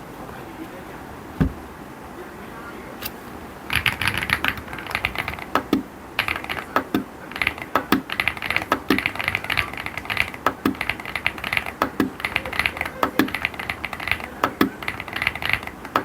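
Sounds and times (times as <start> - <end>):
mechanical keyboard typing: 3.7 - 16.0.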